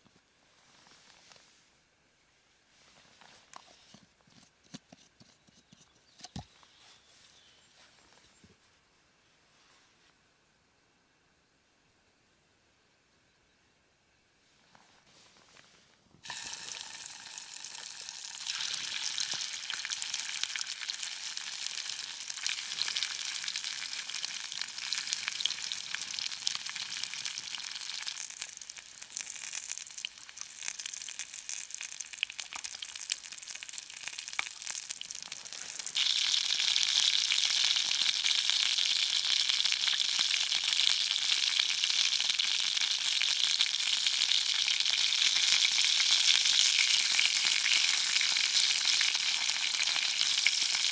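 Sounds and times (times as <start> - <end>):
sausages sizzling in a frying pan: 16.2 - 50.9.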